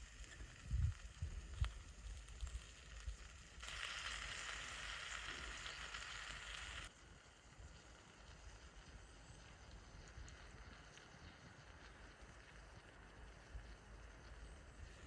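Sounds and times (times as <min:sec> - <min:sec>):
sizzling in a hot tin: 0:00.0 - 0:15.0.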